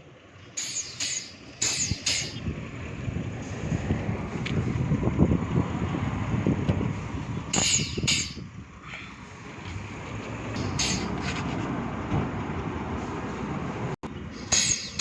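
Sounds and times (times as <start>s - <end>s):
heavy vehicle engine rumbling: 0.0s - 15.0s
air hiss bursts: 0.6s - 2.4s.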